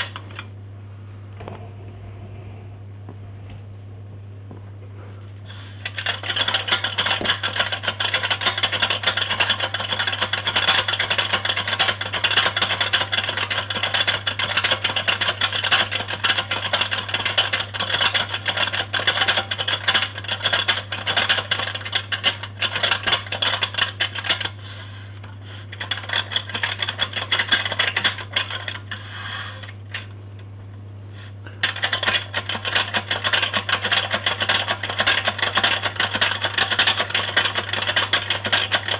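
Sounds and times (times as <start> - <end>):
low hum: 0.0 - 5.9
toy washing machine rattling: 5.8 - 24.6, 25.7 - 29.0, 31.6 - 38.9.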